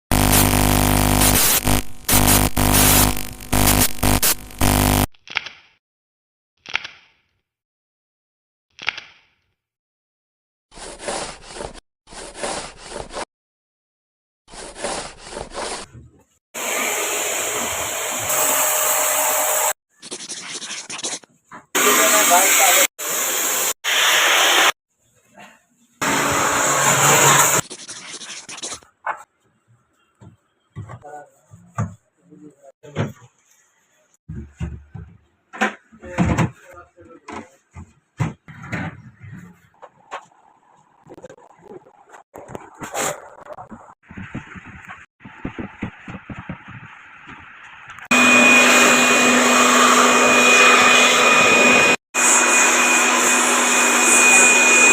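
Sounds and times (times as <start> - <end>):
electric motor whining air rush: 48.1 - 54.9.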